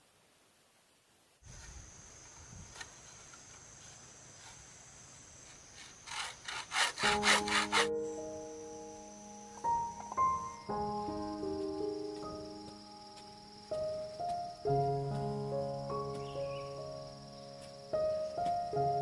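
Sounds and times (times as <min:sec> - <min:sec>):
insects buzzing: 0:00.0 - 0:19.0
hand saw cutting wood: 0:05.5 - 0:07.9
piano music: 0:07.0 - 0:19.0.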